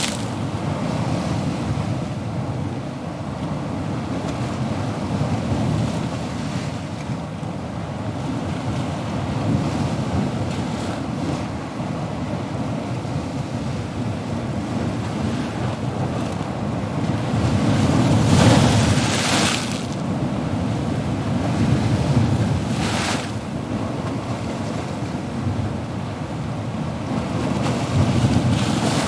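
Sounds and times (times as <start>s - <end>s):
wave breaking and washing in: 0.0s - 1.8s, 15.0s - 25.4s, 26.9s - 29.0s
low rumble of waves: 0.0s - 29.0s.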